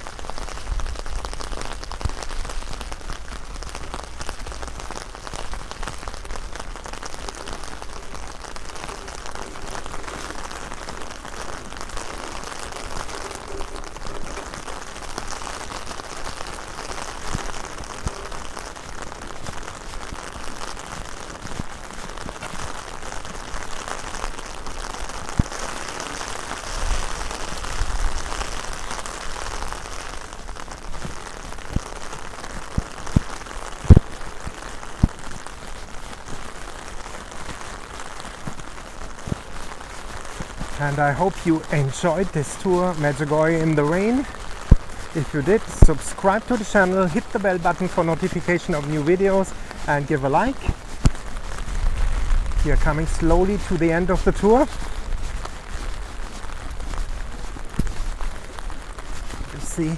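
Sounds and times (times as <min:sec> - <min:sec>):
wind rumbling on microphone: 0:00.0 - 0:47.3, 0:48.2 - 0:59.7
heavy rain on umbrella: 0:00.0 - 0:59.9.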